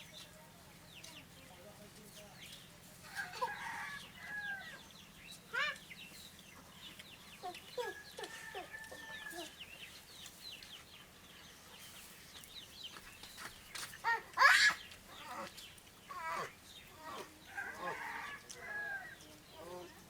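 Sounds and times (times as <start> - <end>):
chickens clucking: 0.1 - 20.0.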